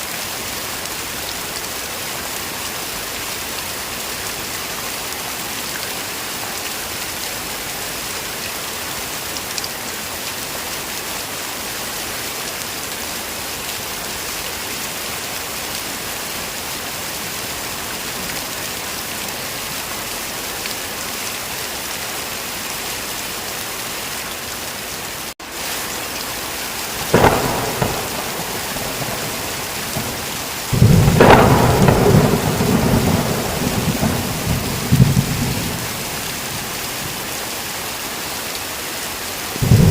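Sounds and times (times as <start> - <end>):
heavy rain: 0.0 - 39.9
sharp thunder crack: 27.0 - 36.3, 39.6 - 39.9
rolling rumble of thunder: 27.0 - 36.7, 39.6 - 39.9.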